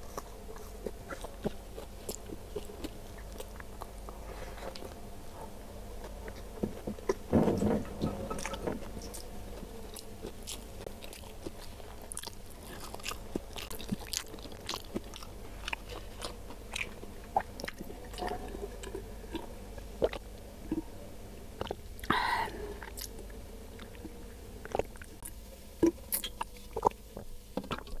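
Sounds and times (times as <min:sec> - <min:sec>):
close chewing: 0:00.0 - 0:07.3, 0:08.3 - 0:20.9, 0:21.6 - 0:28.0
wet mouth clicks and crunches: 0:10.0 - 0:18.2, 0:18.8 - 0:20.2, 0:21.6 - 0:21.8, 0:23.8 - 0:27.0, 0:27.6 - 0:28.0.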